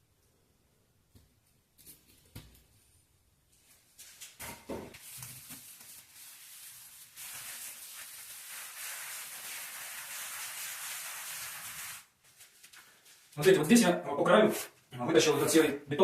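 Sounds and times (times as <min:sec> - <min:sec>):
steady hiss: 0:05.0 - 0:13.8.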